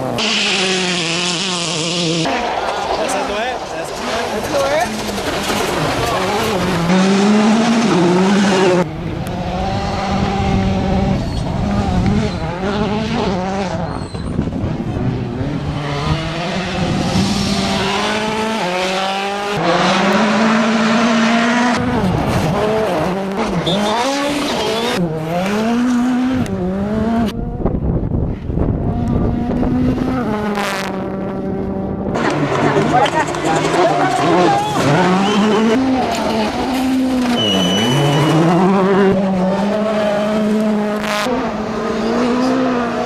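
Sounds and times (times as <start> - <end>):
rally car engines revving: 0.0 - 43.0
tyre noise: 32.1 - 43.0.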